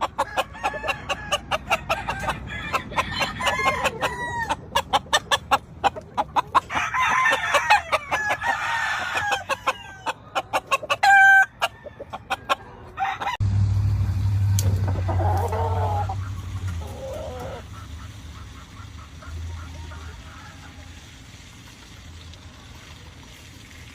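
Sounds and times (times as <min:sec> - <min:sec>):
roosters clucking and crowing: 0:00.0 - 0:23.6
low steady rumble: 0:13.2 - 0:23.7.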